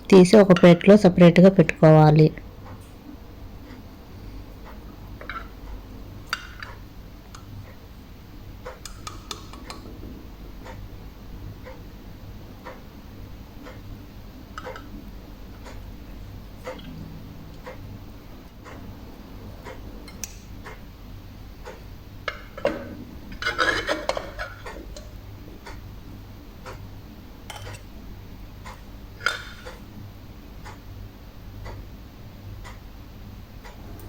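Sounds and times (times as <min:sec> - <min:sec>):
steady ticking: 0:04.5 - 0:23.0, 0:31.6 - 0:31.9
utensils clattering against cookware: 0:22.3 - 0:25.2, 0:27.5 - 0:27.8, 0:29.2 - 0:29.8.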